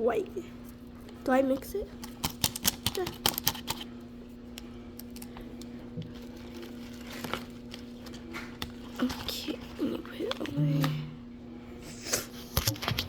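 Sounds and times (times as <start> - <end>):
steady low hum: 0.0 - 13.0
plastic packaging crinkling: 5.0 - 11.0.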